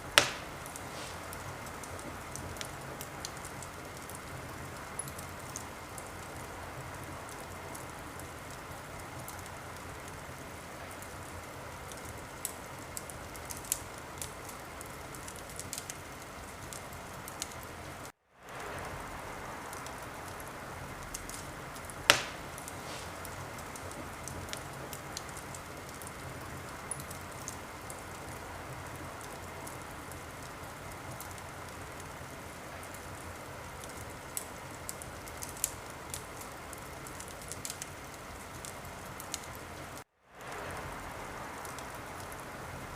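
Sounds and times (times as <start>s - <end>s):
wood fire crackling: 0.0s - 42.9s.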